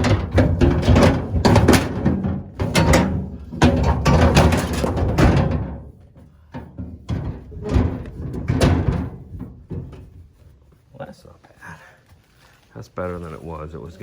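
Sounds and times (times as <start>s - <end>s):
gear clattering and scraping: 0.0s - 10.8s.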